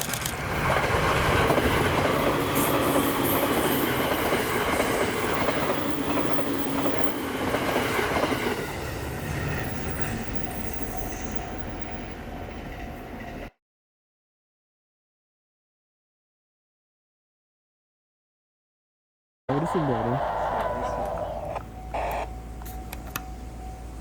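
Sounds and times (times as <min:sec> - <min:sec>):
train passing close by: 0:00.0 - 0:13.6, 0:19.5 - 0:24.0.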